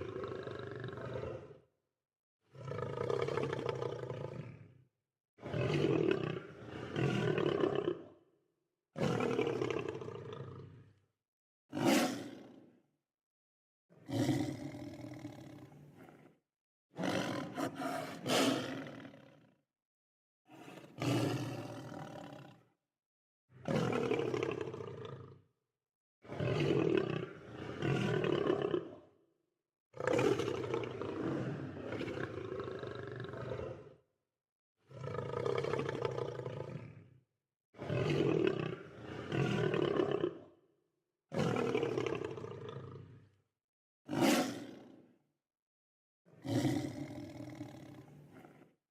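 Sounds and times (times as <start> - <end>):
lion roaring: 2.5 - 4.7, 11.7 - 12.4, 14.1 - 16.3, 17.0 - 19.4, 20.5 - 22.5, 30.0 - 33.9, 34.9 - 37.1, 44.1 - 44.9, 46.4 - 48.7.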